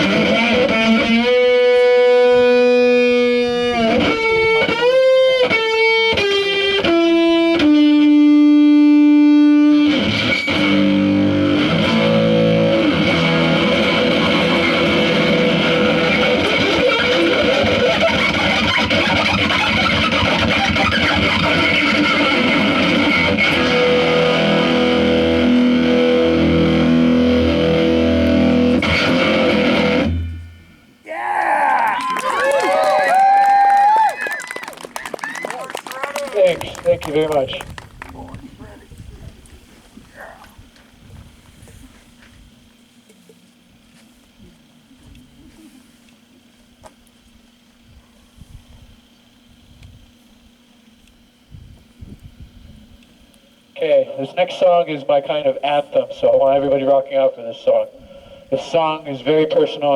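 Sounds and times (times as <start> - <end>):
distorted electric guitar: 0.0 - 30.9, 53.8 - 59.9
low bass line: 10.6 - 17.5, 21.2 - 30.8.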